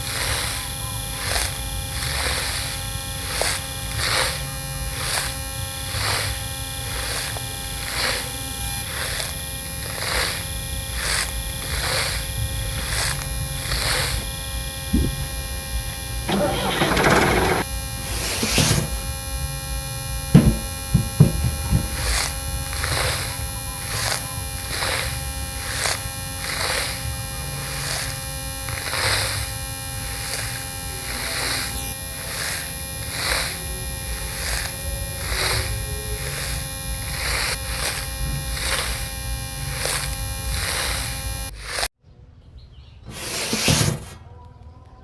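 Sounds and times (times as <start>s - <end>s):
small motor buzzing hum: 0.0s - 41.9s
louder knocks: 20.3s - 22.0s.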